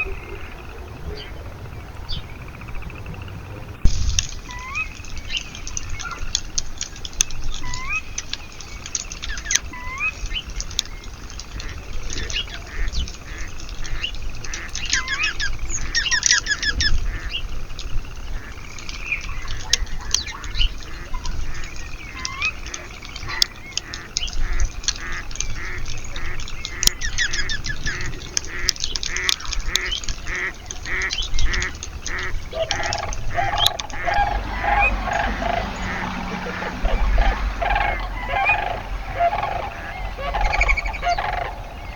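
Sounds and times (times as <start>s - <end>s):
birds calling and singing: 0.0s - 41.9s
larger bird repeated low call: 30.2s - 41.9s.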